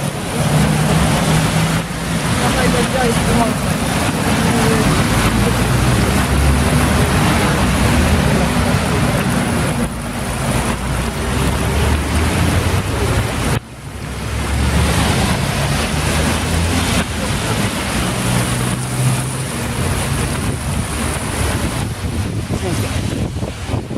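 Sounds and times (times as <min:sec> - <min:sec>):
heavy rain: 0:00.0 - 0:23.9
wind buffeting the microphone: 0:15.0 - 0:23.9.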